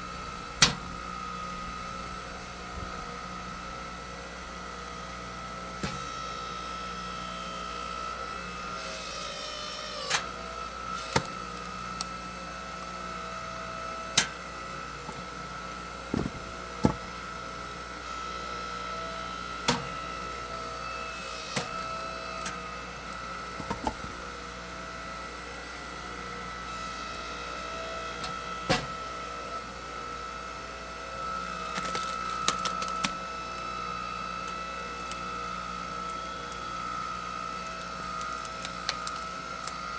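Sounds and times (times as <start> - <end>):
log splitter engine running: 7.4 - 25.2
wood splitting cracks: 16.1 - 17.2, 31.7 - 33.2, 37.6 - 39.9.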